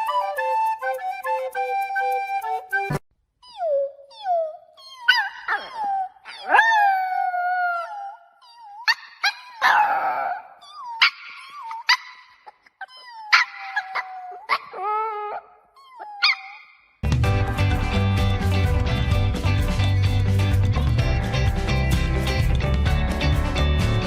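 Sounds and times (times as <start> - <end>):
puppy howling and whining: 3.4 - 16.8
puppy yipping: 3.4 - 17.0.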